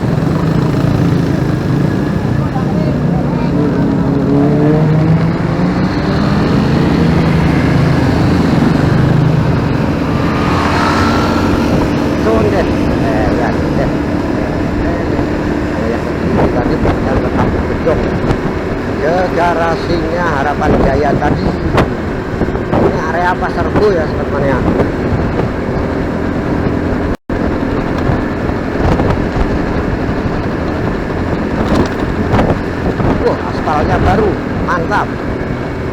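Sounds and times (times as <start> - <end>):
motorcycle engine hum: 0.0 - 35.9
road and wind noise: 0.0 - 35.9.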